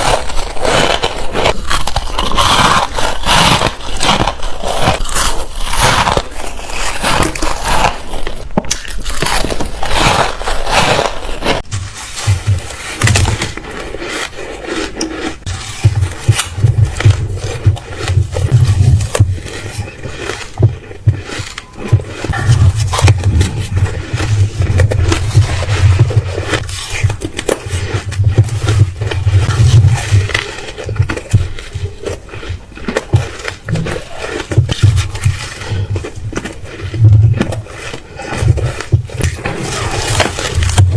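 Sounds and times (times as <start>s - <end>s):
crunching bites into ice: 0.0s - 11.6s
ice crunching: 0.0s - 40.9s
low chewing rumble: 0.0s - 40.9s.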